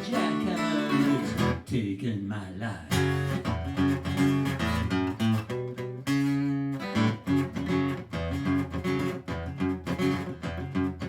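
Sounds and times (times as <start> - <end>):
strummed acoustic guitar chords: 0.0 - 1.8, 2.9 - 11.0.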